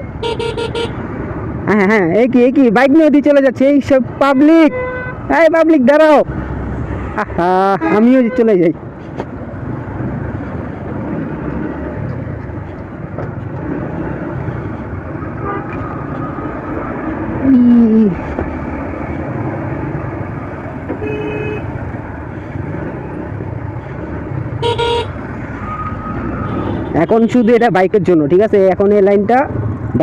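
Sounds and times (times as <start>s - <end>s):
vehicle horns honking: 0.2s - 1.0s, 4.4s - 5.2s, 7.7s - 8.6s, 15.4s - 15.8s, 21.0s - 21.7s, 24.6s - 25.2s.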